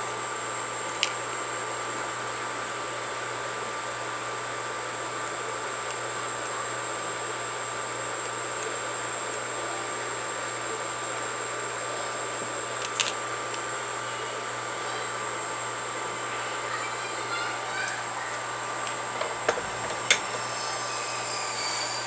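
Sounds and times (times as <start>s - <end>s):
steady whirring: 17.0s - 22.0s.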